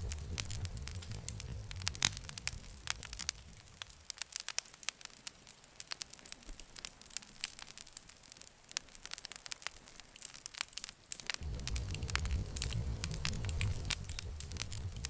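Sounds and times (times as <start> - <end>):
low rumble: 0.0 - 4.0, 11.4 - 15.0
campfire crackling and popping: 0.0 - 15.0.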